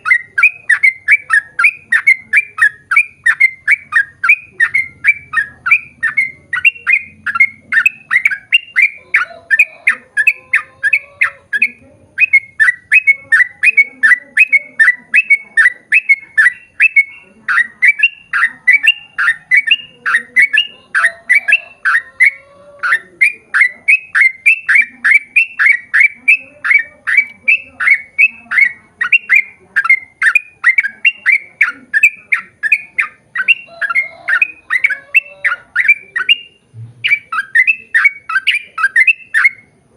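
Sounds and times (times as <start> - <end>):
bulbul chirping song: 0.0 - 39.9.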